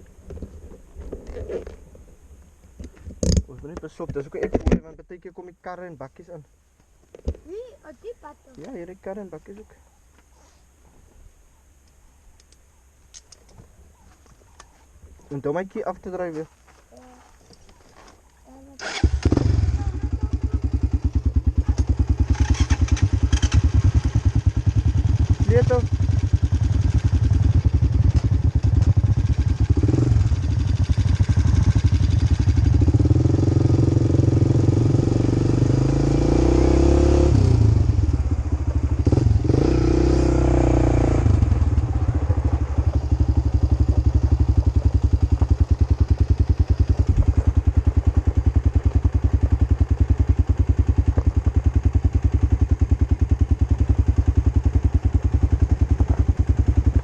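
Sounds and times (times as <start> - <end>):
quad bike engine revving: 18.7 - 57.0.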